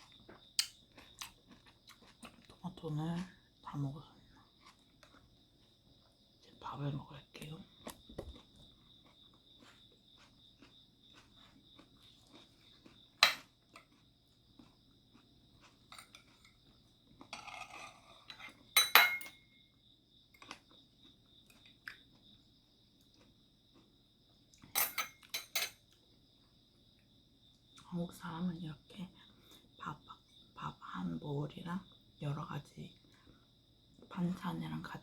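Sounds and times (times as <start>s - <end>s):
cutlery clinking against dishes: 17.3s - 19.4s, 24.7s - 25.8s.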